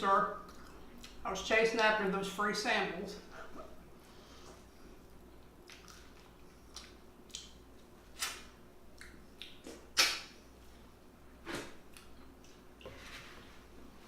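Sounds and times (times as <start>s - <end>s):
person chewing and lip-smacking: 0.4s - 1.2s, 5.3s - 10.3s.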